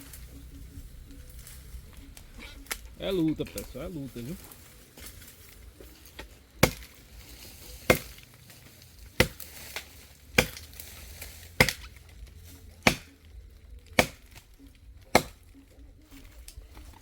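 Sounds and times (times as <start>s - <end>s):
axe chopping dry log: 6.6s - 7.0s, 7.8s - 8.4s, 9.1s - 12.0s, 12.7s - 13.2s, 13.9s - 14.5s, 15.1s - 15.4s.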